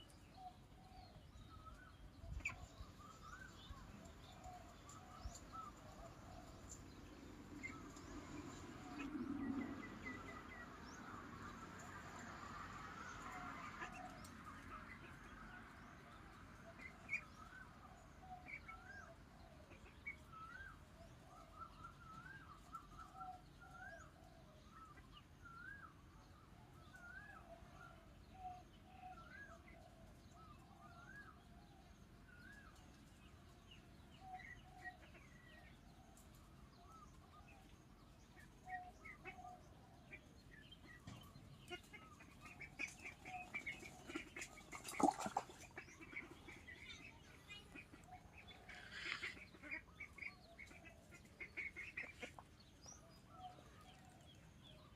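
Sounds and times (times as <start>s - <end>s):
ducklings peeping: 13.2s - 15.4s, 37.0s - 54.9s.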